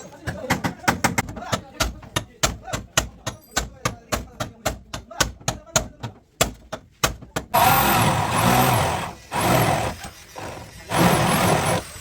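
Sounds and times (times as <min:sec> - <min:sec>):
power tool motor running: 0:07.6 - 0:12.0.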